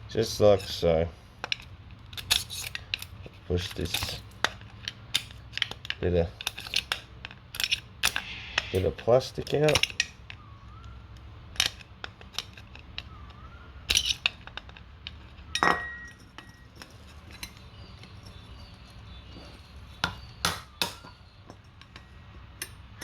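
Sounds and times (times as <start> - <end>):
hand tools clinking on brass: 15.5 - 23.0
metal ringing tone: 15.5 - 23.0.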